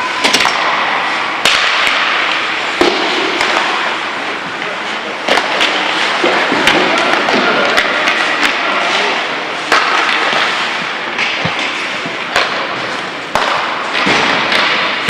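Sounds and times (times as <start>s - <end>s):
hockey stick knocking puck: 0.2s - 4.0s, 4.6s - 8.9s, 9.6s - 15.0s
skates scraping on ice: 0.3s - 15.0s.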